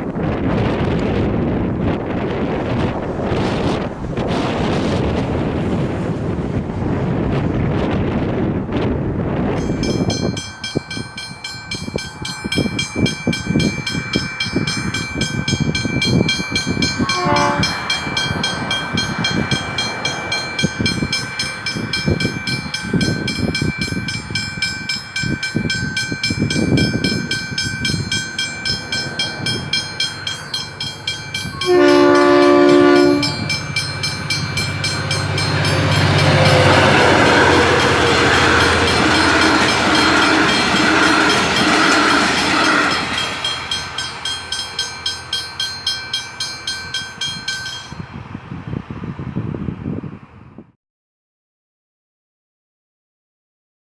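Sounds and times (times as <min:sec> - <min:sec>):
train rumble and wheel noise: 0:00.0 - 0:50.6
level crossing bell ringing: 0:09.6 - 0:48.0
train horn: 0:17.0 - 0:18.0, 0:31.5 - 0:33.6, 0:35.1 - 0:43.1.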